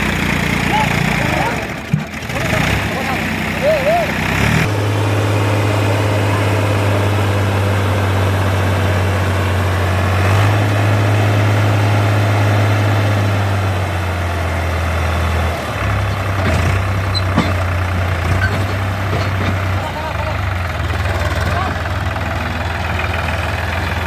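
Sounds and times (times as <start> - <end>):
diesel tractor engine idling: 0.0 - 24.0.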